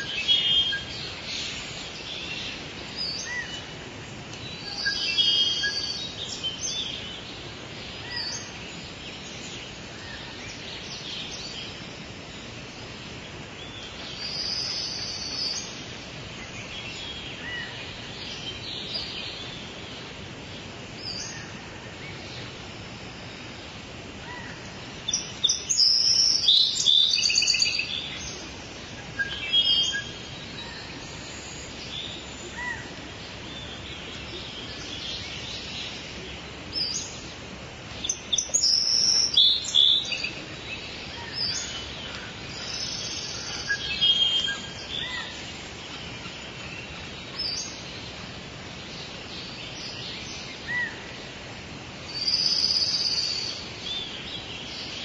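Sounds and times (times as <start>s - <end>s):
birds calling and chirping: 0.0s - 55.0s
steady background hiss: 0.0s - 55.0s.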